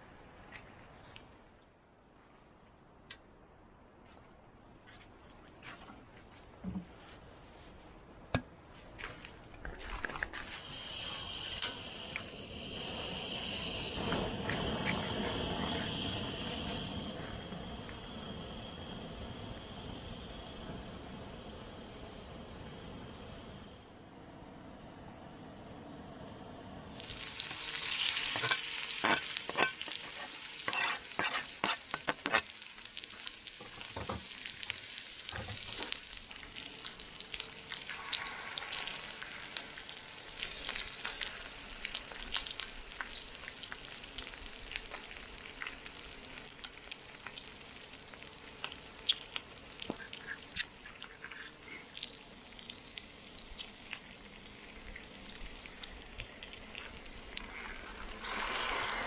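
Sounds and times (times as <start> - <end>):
food sizzling in a pan: 10.4 - 23.7, 26.9 - 59.0.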